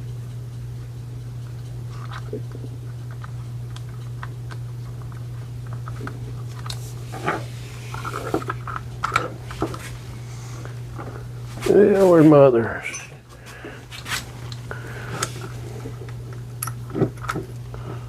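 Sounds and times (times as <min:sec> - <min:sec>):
steady low hum: 0:00.0 - 0:18.0
hand tools clinking and scraping: 0:12.8 - 0:13.2.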